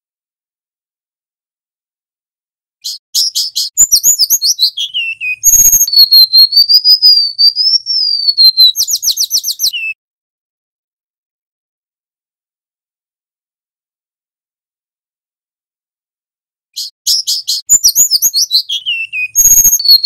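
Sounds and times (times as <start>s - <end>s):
bird singing chirps and trills: 2.8s - 10.0s, 16.8s - 20.0s.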